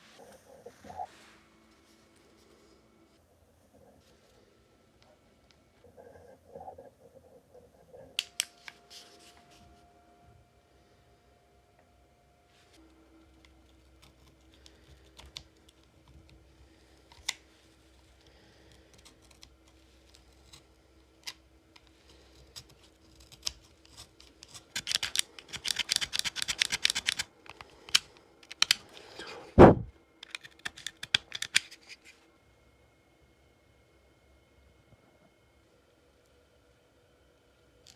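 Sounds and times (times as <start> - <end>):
loud thump: 29.6 - 29.9.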